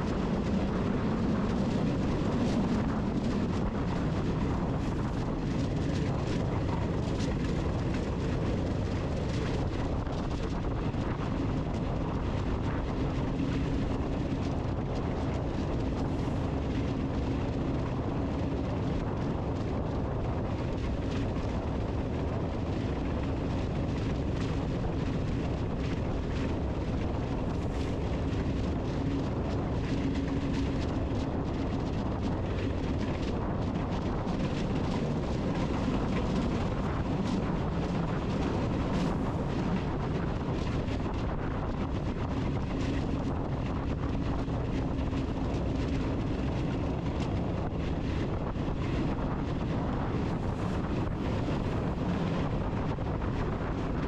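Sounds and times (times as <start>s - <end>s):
even rushing noise: 49.1s - 53.8s.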